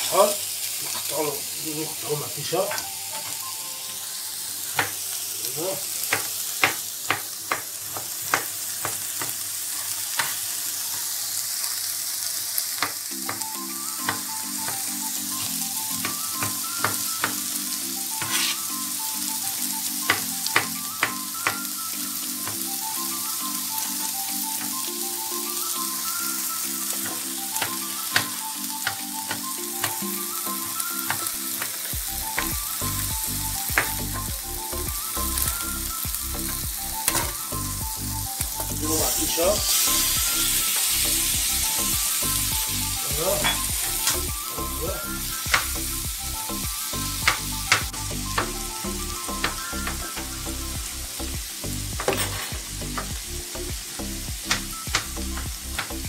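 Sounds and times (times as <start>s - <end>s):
soft background music: 0.0s - 56.0s
vegetables sizzling in oil: 0.0s - 56.0s
utensils tapping and clicking: 6.1s - 9.4s, 20.1s - 21.7s, 26.9s - 32.6s, 33.7s - 34.0s, 45.4s - 45.8s, 47.2s - 48.6s, 52.0s - 53.2s.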